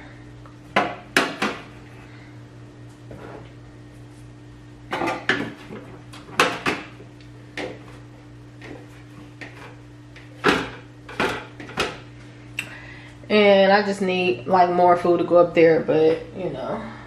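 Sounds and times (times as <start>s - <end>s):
steady low hum: 0.0s - 17.0s
food containers knocking on shelves: 0.7s - 1.7s, 4.9s - 7.0s, 8.6s - 12.0s.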